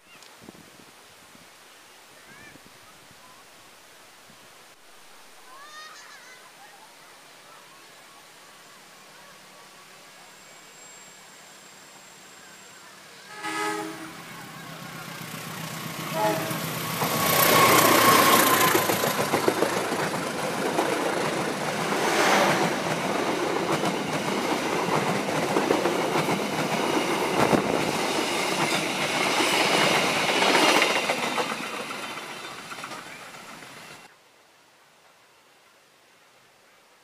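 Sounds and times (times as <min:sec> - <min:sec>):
wheels rushing on rails: 0:09.4 - 0:34.1
diesel train passing at speed: 0:10.6 - 0:34.1.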